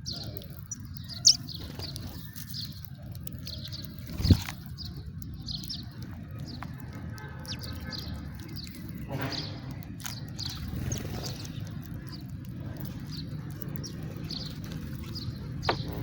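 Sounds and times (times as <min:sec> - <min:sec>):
sparrows chirping: 0:00.0 - 0:16.0.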